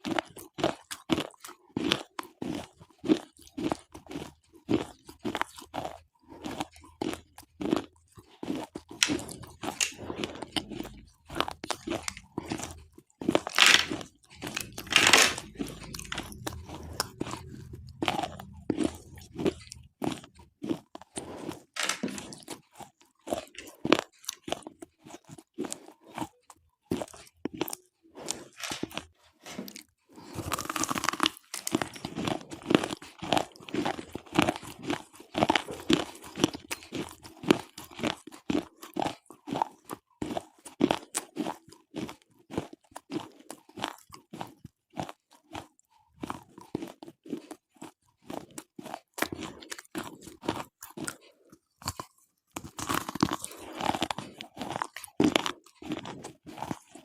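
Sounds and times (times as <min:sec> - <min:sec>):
pencils being bitten and chewed: 0:00.0 - 0:57.0.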